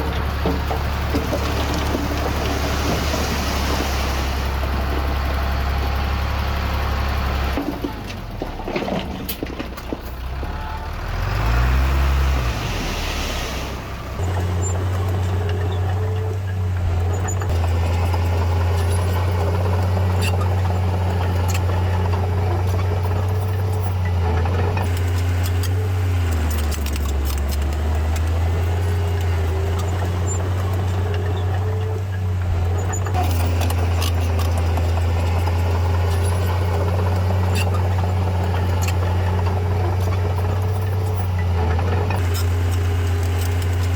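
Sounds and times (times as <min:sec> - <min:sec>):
diesel engine droning: 0:00.0 - 0:43.9.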